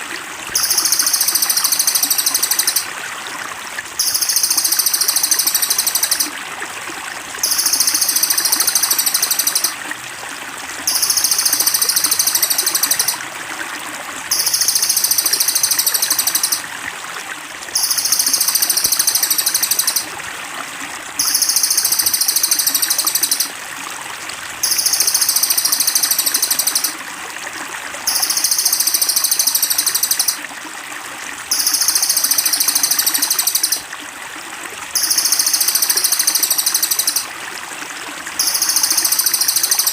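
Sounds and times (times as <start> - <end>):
trickling water: 0.0 - 39.9
songbird trilling call: 0.6 - 2.9, 4.0 - 6.3, 7.4 - 9.8, 10.9 - 13.2, 14.3 - 16.6, 17.8 - 20.1, 21.2 - 23.5, 24.6 - 27.0, 28.1 - 30.4, 31.5 - 33.8, 35.0 - 37.3.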